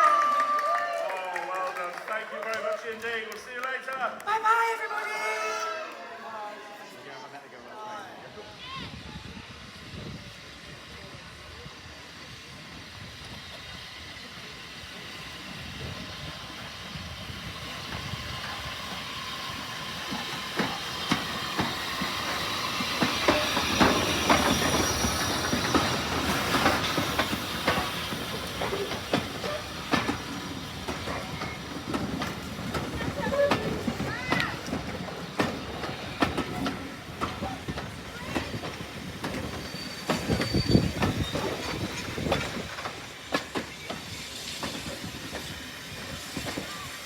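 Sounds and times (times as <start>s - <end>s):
steam train passing: 0.0s - 47.0s
steam hissing: 8.6s - 47.0s
wheels clanking on rails: 10.0s - 47.0s.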